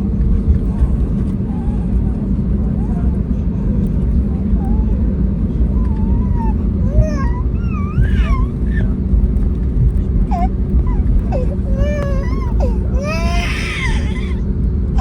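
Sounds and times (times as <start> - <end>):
airliner cabin rumble: 0.0 - 15.0
small child whimpering: 4.6 - 9.1, 10.2 - 14.4.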